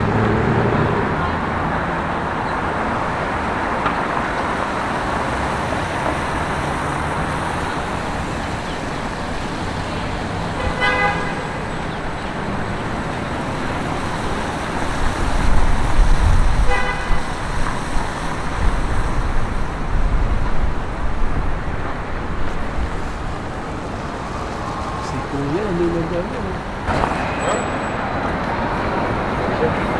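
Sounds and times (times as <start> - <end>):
heavy vehicle rumbling past: 0.0 - 3.8
city street traffic: 0.0 - 29.9
car horn toots: 10.6 - 11.9, 16.7 - 17.4.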